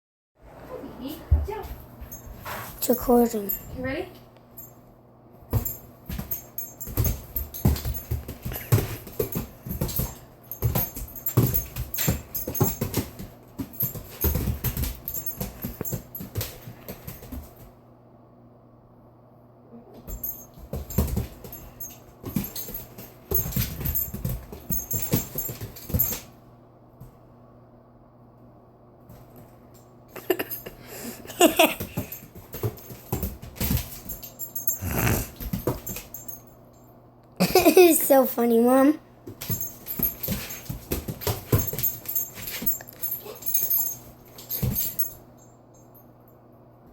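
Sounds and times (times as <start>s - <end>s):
dog paws pattering on floor: 0.4s - 4.8s, 5.4s - 17.8s, 20.0s - 26.4s, 29.0s - 36.6s, 37.4s - 45.5s
light metallic jingle: 1.0s - 4.9s, 5.5s - 17.6s, 20.0s - 26.4s, 29.7s - 46.5s
dog whining: 34.7s - 35.4s.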